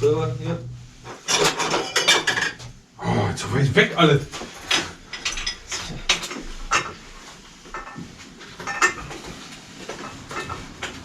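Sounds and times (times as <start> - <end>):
metal tools clinking: 1.2 - 2.7, 4.4 - 7.0, 8.6 - 9.2.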